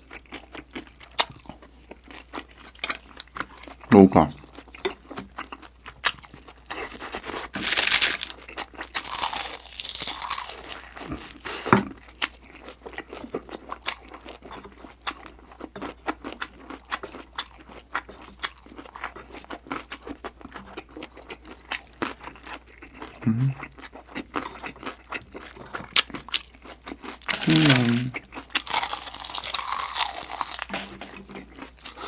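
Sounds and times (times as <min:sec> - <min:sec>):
wet chewing: 0:00.0 - 0:32.0
crunching bites: 0:06.0 - 0:11.8, 0:27.1 - 0:32.0.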